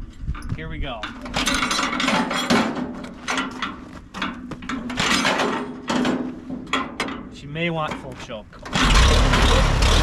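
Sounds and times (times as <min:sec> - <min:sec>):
engine hand crank clattering: 0:08.0 - 0:10.0.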